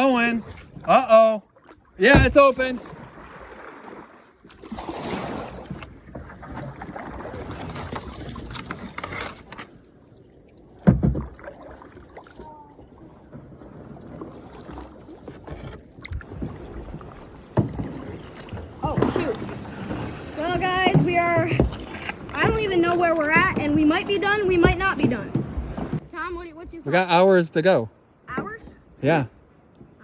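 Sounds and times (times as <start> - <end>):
water rushing at kayak hull: 0.0 - 30.0
boat knocking on something hard: 2.0 - 3.2, 10.8 - 11.4, 15.2 - 26.3.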